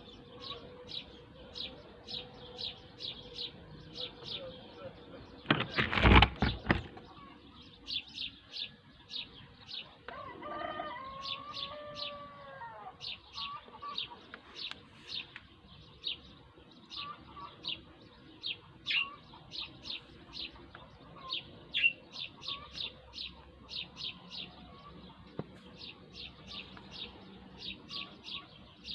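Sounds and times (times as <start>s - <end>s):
rooster crowing: 10.1s - 13.0s
small bird chirping: 13.0s - 28.9s.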